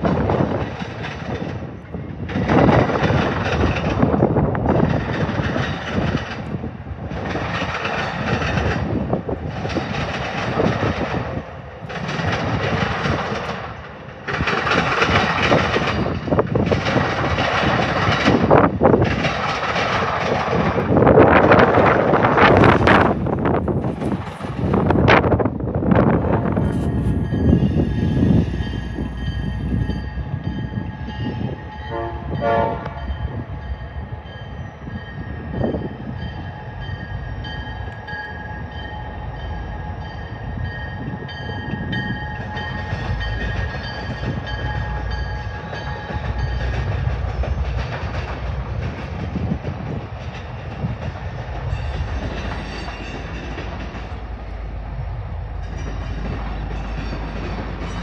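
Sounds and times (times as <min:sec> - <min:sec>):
freight cars clacking over rails: 0:00.0 - 0:29.9, 0:55.5 - 0:58.0
diesel locomotive engine running: 0:00.0 - 0:58.0
train horn note: 0:31.8 - 0:33.2.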